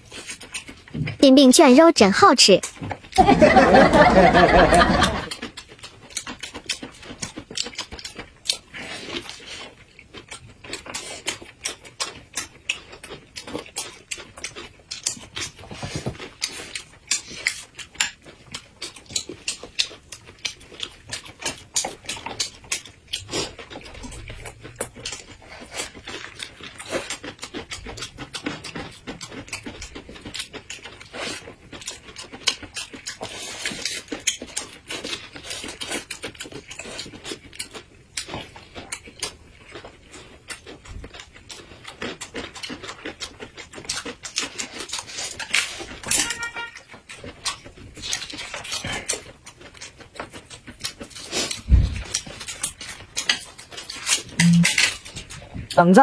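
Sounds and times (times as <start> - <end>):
wet chewing: 0.0 - 56.0
lip smacks: 50.8 - 55.1.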